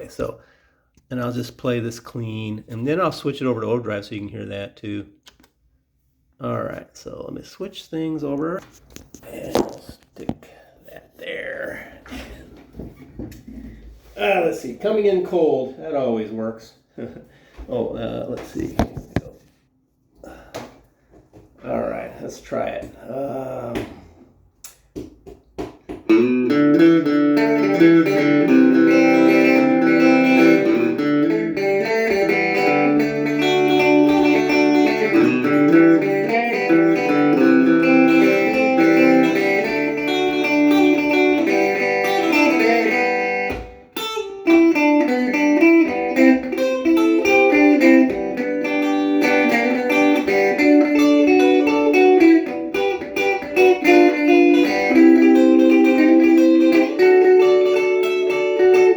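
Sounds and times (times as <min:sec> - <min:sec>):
clean electric guitar with delay: 0:26.1 - 0:58.9.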